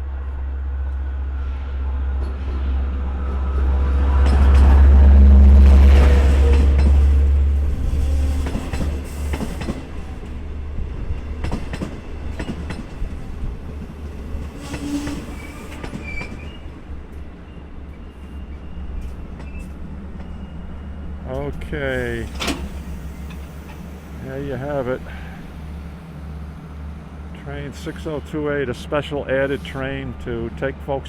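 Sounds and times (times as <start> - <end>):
diesel locomotive rumble: 0.0 - 31.0
train wheels clicking over rail joints: 6.5 - 10.4, 11.0 - 17.3, 21.3 - 25.8
brake squeal: 14.6 - 16.7.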